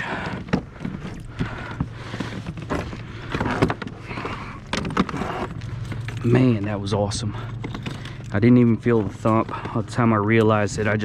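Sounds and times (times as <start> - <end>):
knocks clicks and rattles on a kayak: 0.0 - 11.0.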